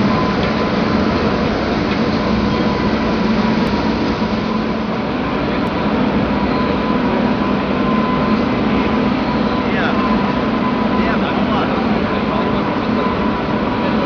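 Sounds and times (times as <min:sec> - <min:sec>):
mining machinery rumbling: 0:00.0 - 0:14.0
thin steady whine: 0:00.0 - 0:14.0.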